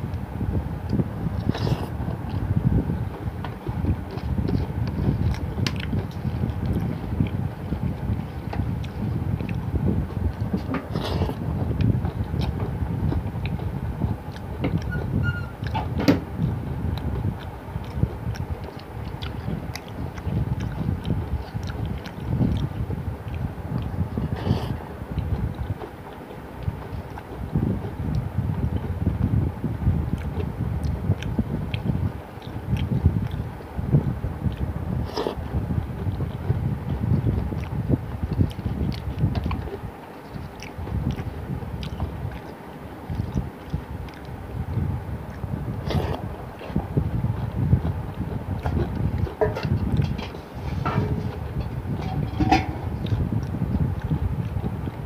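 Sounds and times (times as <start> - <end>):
chewing and wet mouth smacks: 3.4 - 7.4, 8.1 - 9.6, 10.3 - 13.7, 14.3 - 15.8, 17.0 - 29.0, 30.1 - 55.0
small mouth clicks: 37.3 - 44.4, 45.3 - 54.3
low rumble: 44.2 - 55.0.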